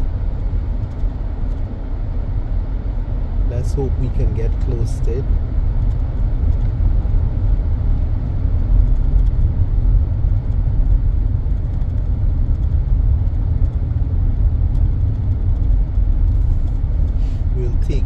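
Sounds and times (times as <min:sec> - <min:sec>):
car interior engine and road noise: 0:00.0 - 0:18.0.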